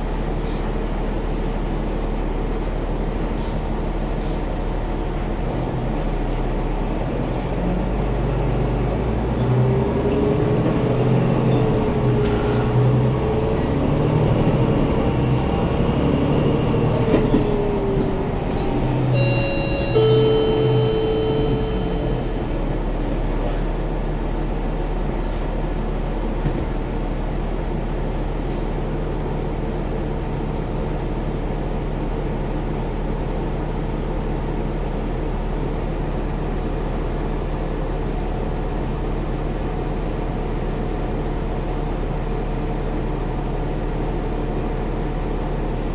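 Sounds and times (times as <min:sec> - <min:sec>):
bus running hum: 0:00.0 - 0:33.3
chime tones: 0:19.2 - 0:22.9.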